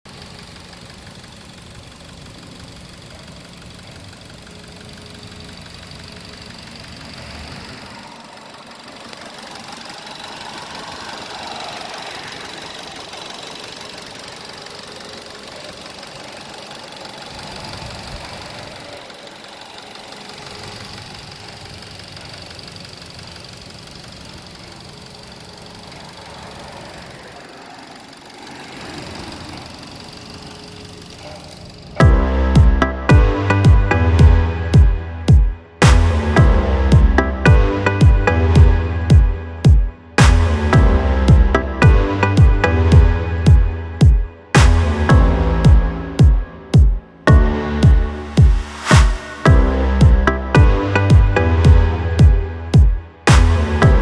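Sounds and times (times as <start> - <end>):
car engine idling with misfire: 0.1 - 32.0.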